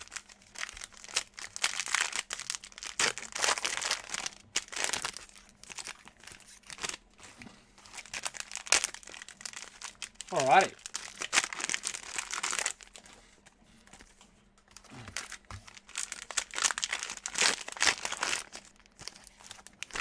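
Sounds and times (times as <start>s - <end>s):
plastic wrappers crinkling and tearing: 0.0s - 20.0s.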